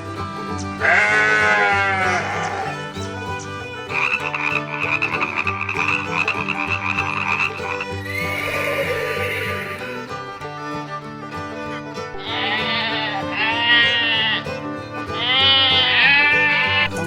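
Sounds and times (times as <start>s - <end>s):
background music: 0.0s - 17.0s
goat bleating: 0.0s - 17.0s.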